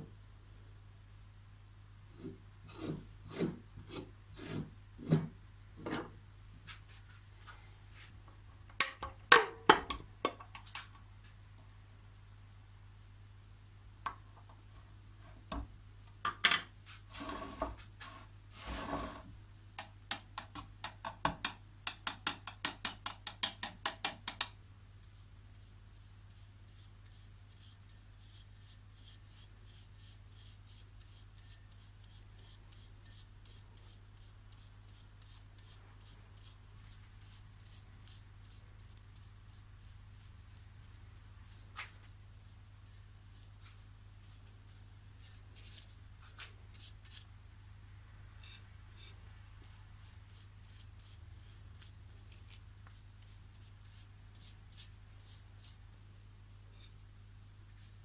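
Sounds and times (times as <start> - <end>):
hand scraping strokes on metal: 16.9 - 19.3.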